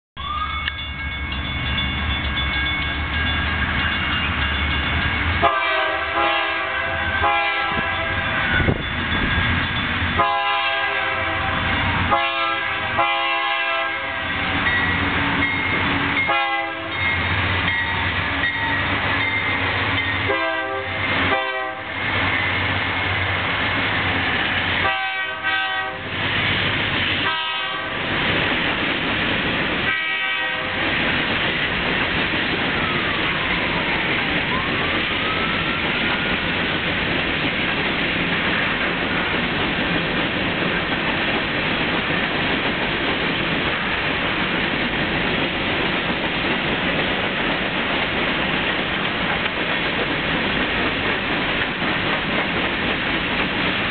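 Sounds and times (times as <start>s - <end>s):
train air horn blasts: 5.4s - 8.6s, 10.2s - 14.5s, 16.3s - 17.0s, 20.3s - 22.0s, 24.8s - 26.1s, 27.2s - 28.1s, 29.9s - 30.9s.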